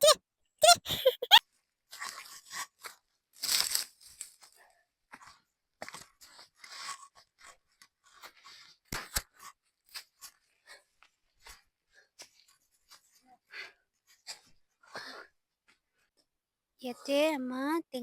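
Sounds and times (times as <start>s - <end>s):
leaves rustling and stems snapping: 3.4s - 4.4s.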